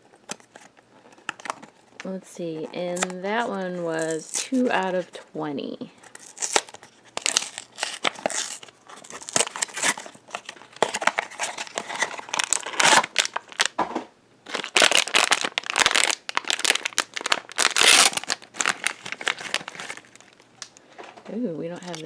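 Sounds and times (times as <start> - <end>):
packaging tearing and crinkling: 0.3 - 1.8, 3.9 - 5.0, 6.0 - 13.8, 14.4 - 20.8, 21.8 - 22.0.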